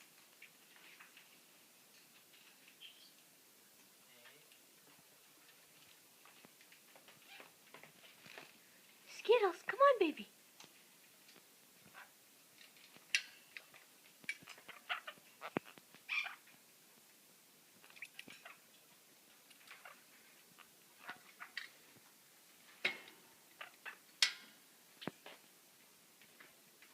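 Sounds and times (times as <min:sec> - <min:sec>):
parrots chirping: 0:14.3 - 0:16.5, 0:17.8 - 0:18.7, 0:19.5 - 0:21.7, 0:23.5 - 0:24.3.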